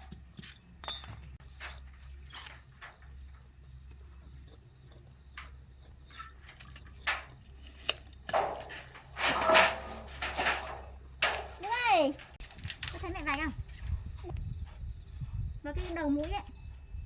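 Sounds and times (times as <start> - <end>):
clicks and knocks: 8.3 - 13.0.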